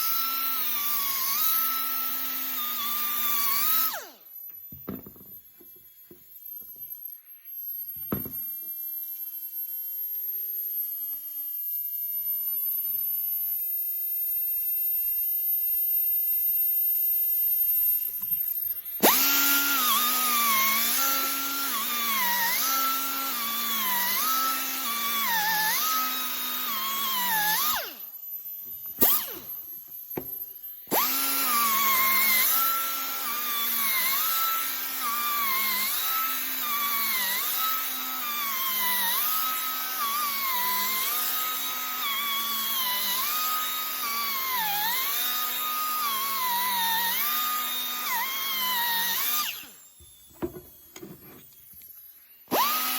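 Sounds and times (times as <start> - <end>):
grinder on metal: 0.0 - 4.2, 18.8 - 28.1, 29.0 - 51.8, 52.5 - 52.9.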